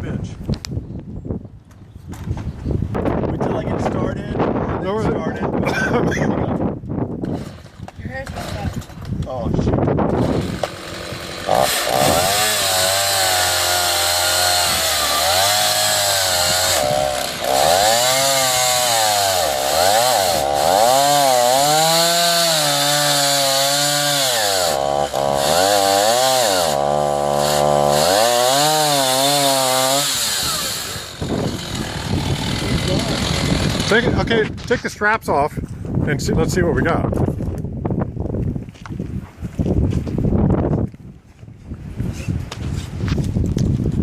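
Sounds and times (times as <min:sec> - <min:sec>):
chainsaw ripping log: 0:07.2 - 0:09.0, 0:10.1 - 0:34.7.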